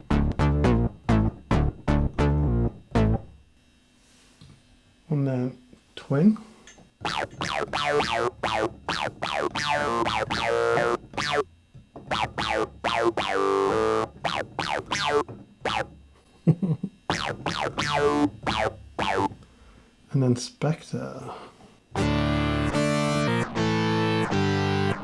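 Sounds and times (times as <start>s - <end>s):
synth notes sweeping down: 7.0s - 11.4s, 12.1s - 15.9s, 17.1s - 19.3s.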